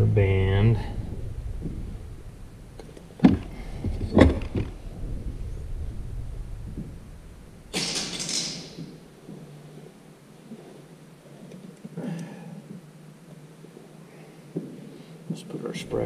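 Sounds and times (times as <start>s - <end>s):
rushing scraping noise: 0.0s - 8.8s
metal parts clunking: 7.7s - 9.0s.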